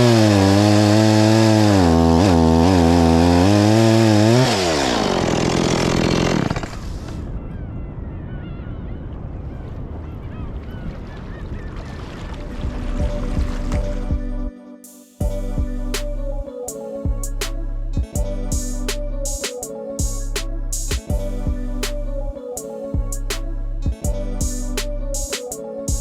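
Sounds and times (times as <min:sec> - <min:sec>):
chainsaw running at high revs: 0:00.0 - 0:07.1.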